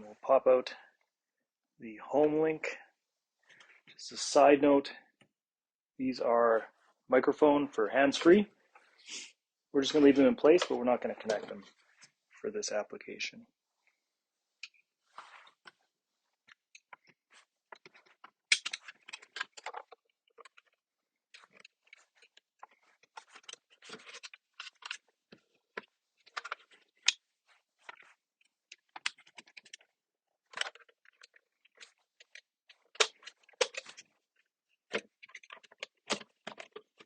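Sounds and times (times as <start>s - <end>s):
plastic clicking and scraping: 14.6s - 37.0s.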